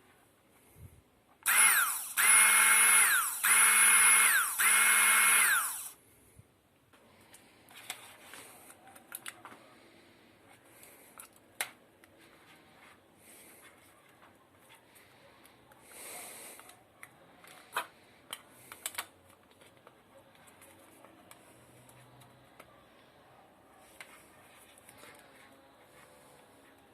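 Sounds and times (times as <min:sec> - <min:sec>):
plastic parts clicking and tapping: 0:16.6 - 0:22.7.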